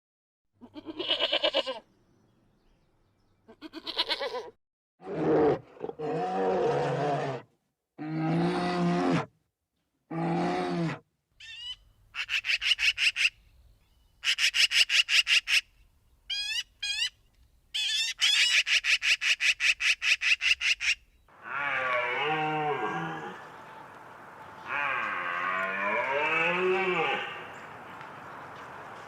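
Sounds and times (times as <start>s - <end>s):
large animal roaring: 5.0s - 7.4s, 8.0s - 9.3s, 10.1s - 11.0s, 21.4s - 23.6s, 24.6s - 27.5s
cow mooing: 21.4s - 27.7s.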